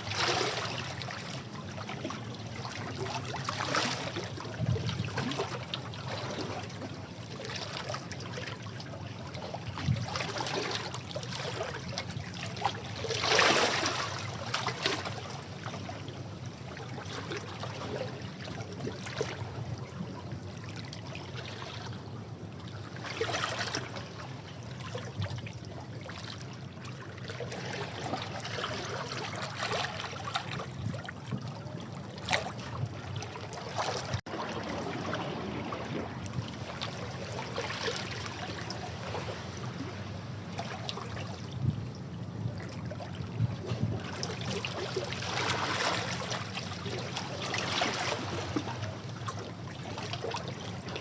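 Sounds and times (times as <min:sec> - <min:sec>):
sea waves washing against rocks: 0:33.8 - 0:40.2.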